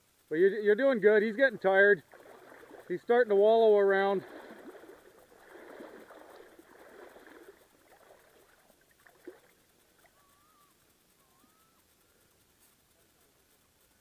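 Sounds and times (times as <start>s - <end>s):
faint wavering whistle-like tones: 0.0s - 14.0s
water sloshing and splashing: 2.0s - 10.2s.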